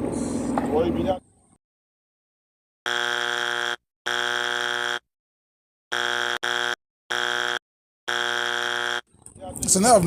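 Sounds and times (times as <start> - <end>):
electronic buzzer alarm: 2.8 - 5.1, 5.9 - 9.1.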